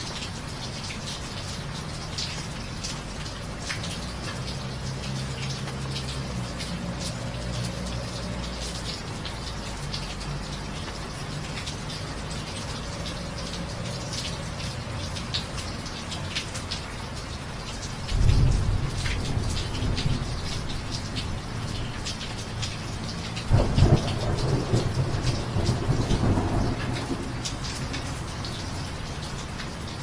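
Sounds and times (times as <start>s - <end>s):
raindrop ticks: 0.0s - 30.0s
steady rain falling: 0.0s - 30.0s
thunder rumbling: 23.5s - 28.0s.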